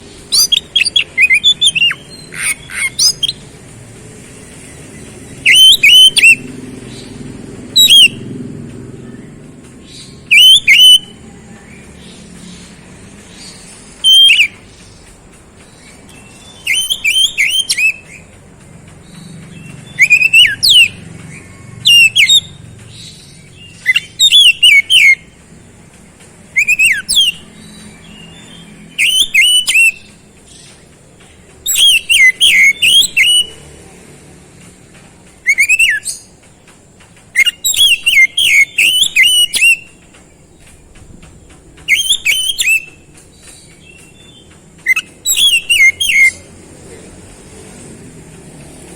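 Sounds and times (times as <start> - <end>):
bird singing whistled notes: 0.0 - 3.5, 4.7 - 8.3, 9.0 - 18.4, 19.0 - 25.4, 26.5 - 30.8, 31.6 - 33.6, 35.4 - 36.3, 37.3 - 40.0, 41.5 - 46.5.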